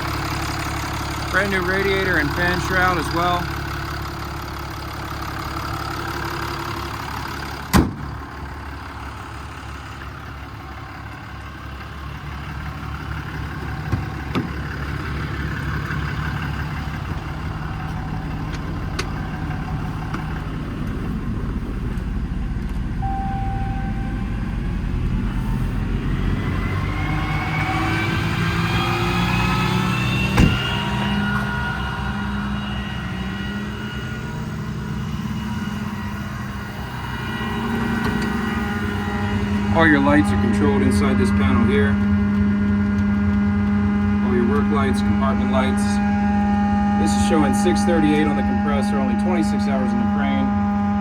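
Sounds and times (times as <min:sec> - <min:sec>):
diesel engine idling: 0:00.0 - 0:51.0
rising whine: 0:08.5 - 0:51.0.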